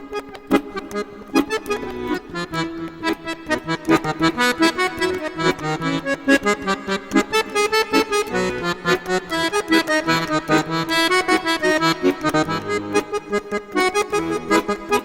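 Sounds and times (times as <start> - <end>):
lively accordion tune: 0.0 - 15.0.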